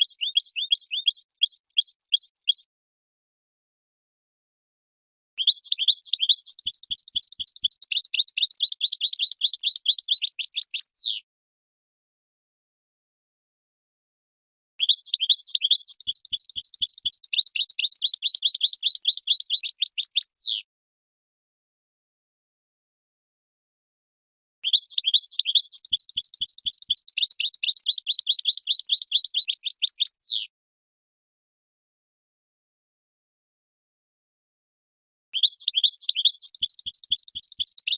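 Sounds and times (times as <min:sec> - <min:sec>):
goldfinch twittering song: 0:00.0 - 0:02.7, 0:05.4 - 0:11.2, 0:14.8 - 0:20.6, 0:24.6 - 0:30.5, 0:35.4 - 0:37.9.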